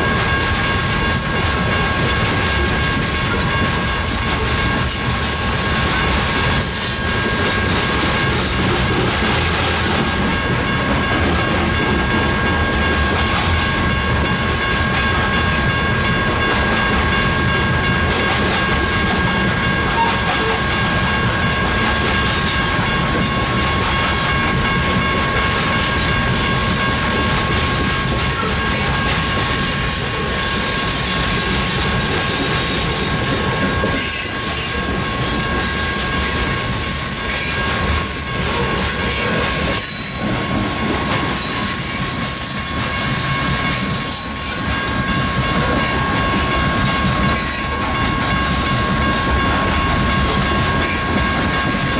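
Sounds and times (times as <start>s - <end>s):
train wheels rumbling on rails: 0.0s - 51.9s
high-pitched wheel squeal: 33.9s - 40.2s, 41.4s - 43.1s.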